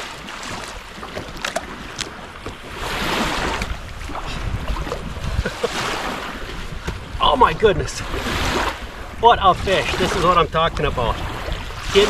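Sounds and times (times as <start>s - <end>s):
water lapping around a kayak: 0.0s - 12.0s
wind rumbling on microphone: 0.0s - 12.0s.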